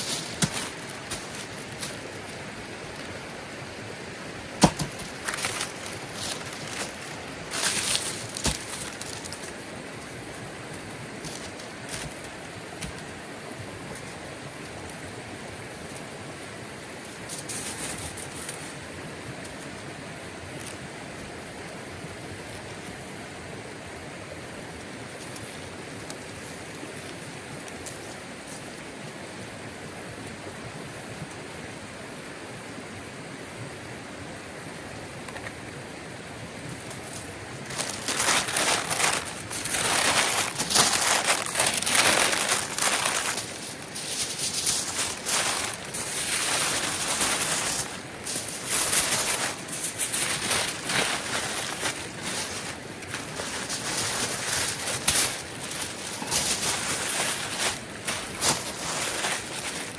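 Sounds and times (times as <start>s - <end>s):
rustling handling noises: 0.0s - 3.5s, 4.4s - 13.2s, 17.0s - 19.8s, 25.0s - 28.8s, 36.6s - 59.9s
stream water rushing: 0.0s - 17.3s, 35.8s - 59.9s.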